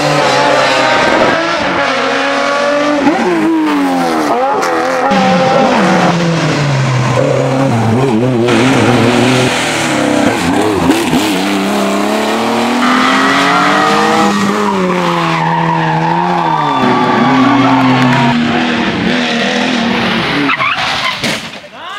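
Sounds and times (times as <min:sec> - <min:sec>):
rally car engines at full throttle: 0:00.0 - 0:21.6.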